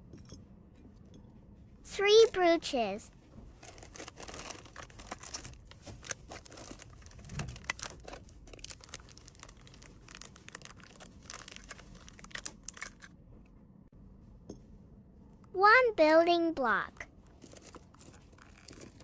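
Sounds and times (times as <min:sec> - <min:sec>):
packaging crinkling and rustling: 0:03.4 - 0:13.1, 0:17.3 - 0:19.0
small items clicking and tapping: 0:03.6 - 0:13.1, 0:17.3 - 0:19.0.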